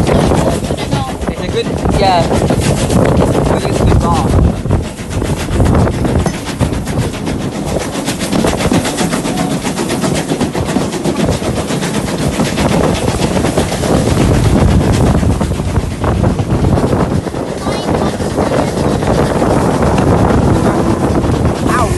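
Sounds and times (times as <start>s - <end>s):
steam train chugging: 0.0s - 21.9s.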